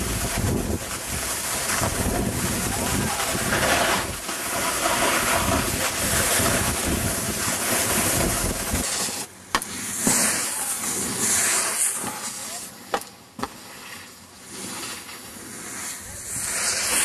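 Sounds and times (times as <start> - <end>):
wind on microphone: 0.0 - 4.2, 5.2 - 8.9
snowboard sliding over snow: 0.0 - 17.0.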